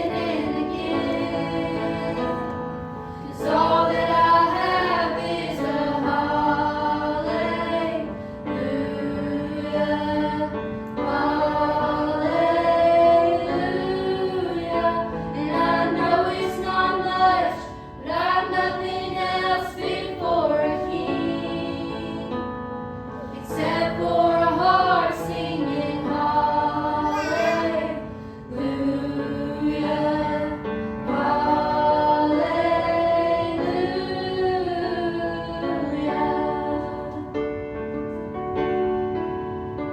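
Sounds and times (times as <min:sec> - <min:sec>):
youth choir singing: 0:00.0 - 0:22.5, 0:23.2 - 0:37.3.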